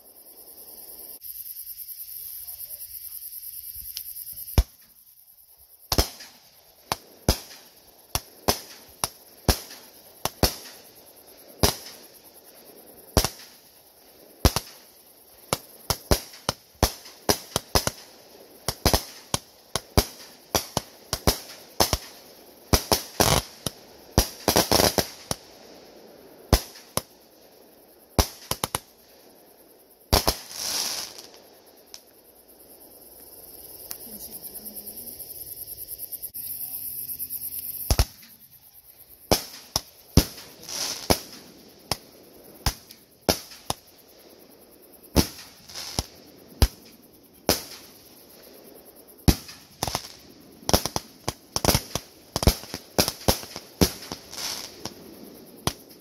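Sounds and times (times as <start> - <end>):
fireworks hissing and crackling: 0.0 - 56.0
fireworks banging: 5.9 - 12.3, 13.0 - 25.4, 26.5 - 27.2, 37.7 - 38.4, 39.2 - 43.9, 45.1 - 48.1, 49.2 - 56.0.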